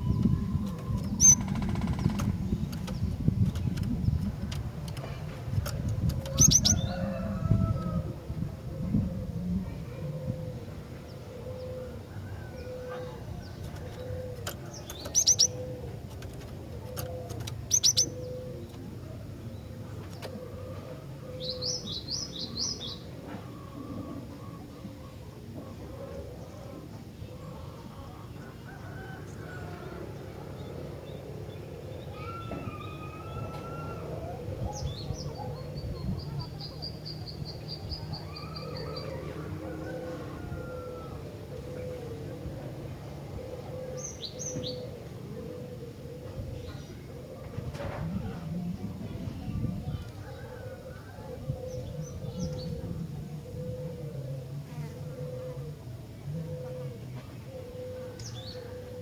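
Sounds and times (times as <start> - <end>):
bird chirping: 0.0 - 4.2, 6.3 - 7.0, 14.8 - 15.7, 17.7 - 18.3
low background rumble: 0.0 - 11.4.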